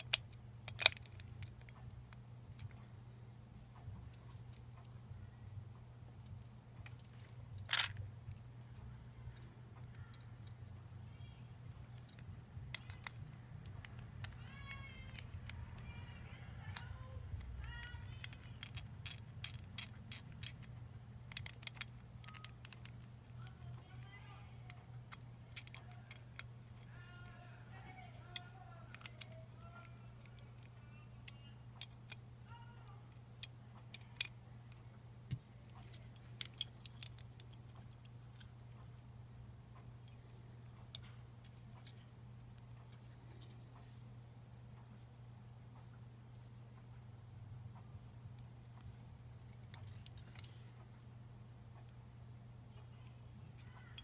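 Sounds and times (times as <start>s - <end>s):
steady low hum: 0.0s - 54.0s
light clicks and taps: 6.1s - 39.1s, 39.7s - 44.1s, 47.7s - 51.0s
faint voice: 26.8s - 30.2s, 32.4s - 33.1s.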